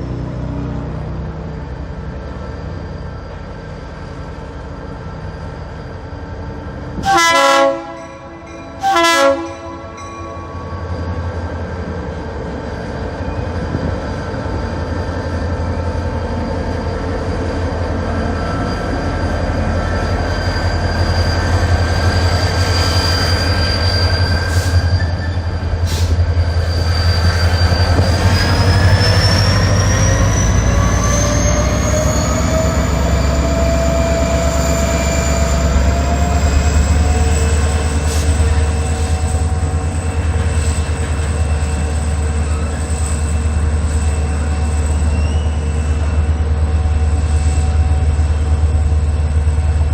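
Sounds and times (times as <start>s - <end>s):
locomotive engine rumbling: 0.0s - 49.9s
locomotive horn blasts: 7.0s - 10.4s.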